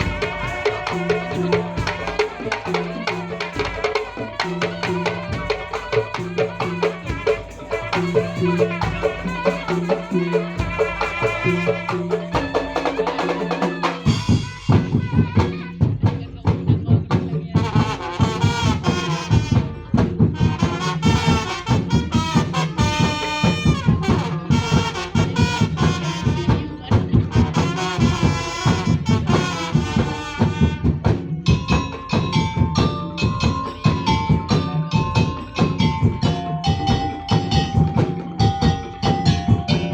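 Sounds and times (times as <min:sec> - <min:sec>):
percussion ensemble playing: 0:00.0 - 0:39.9
melodic lead: 0:31.6 - 0:39.9.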